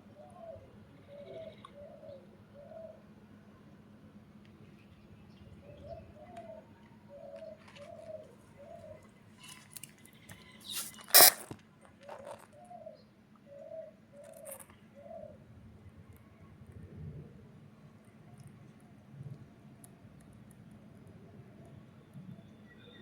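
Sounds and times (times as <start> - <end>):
faint bird chirps: 0.1 - 3.0
dove cooing: 0.2 - 3.1, 5.6 - 9.0, 12.0 - 15.4.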